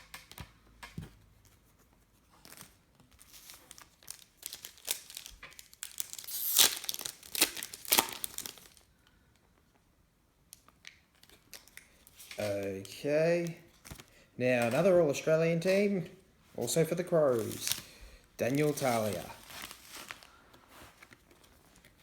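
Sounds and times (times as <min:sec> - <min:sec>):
foil pack tearing and crinkling: 0:02.4 - 0:08.9, 0:17.3 - 0:17.9, 0:18.5 - 0:20.4.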